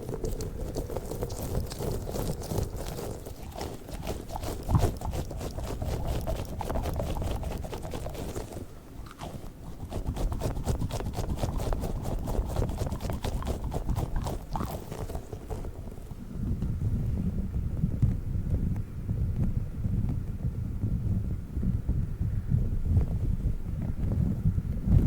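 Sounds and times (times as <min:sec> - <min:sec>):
squishy balls crackling and tapping: 0:00.0 - 0:16.6.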